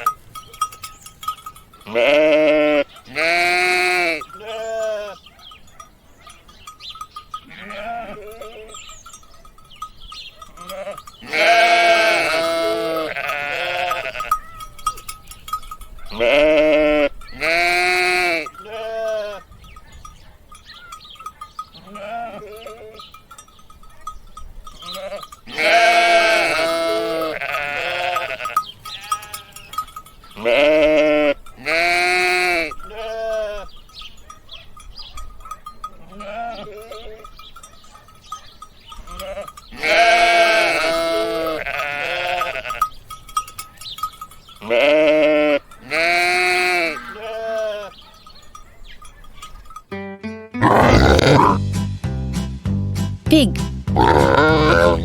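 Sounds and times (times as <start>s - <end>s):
sheep bleating: 1.9s - 5.2s, 7.4s - 8.8s, 10.6s - 14.4s, 16.1s - 19.4s, 21.8s - 23.0s, 24.8s - 29.7s, 30.4s - 33.7s, 36.0s - 37.2s, 39.1s - 42.9s, 44.6s - 48.0s, 50.6s - 51.6s, 54.0s - 55.0s.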